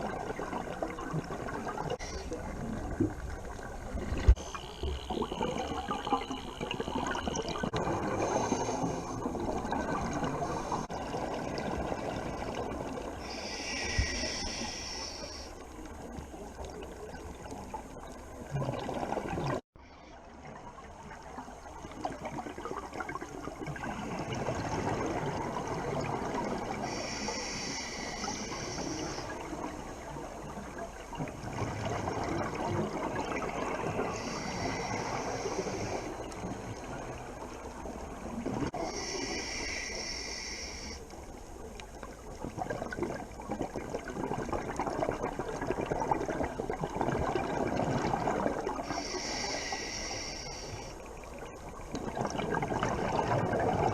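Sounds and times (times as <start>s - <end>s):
hissing scuba inhale: 2.0s - 2.4s, 13.2s - 15.7s, 26.7s - 29.7s, 33.8s - 36.4s, 38.7s - 41.1s, 48.8s - 51.1s.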